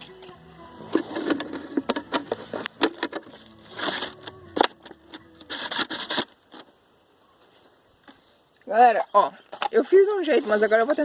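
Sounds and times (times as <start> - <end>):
scraping rustles: 0.9 - 6.7.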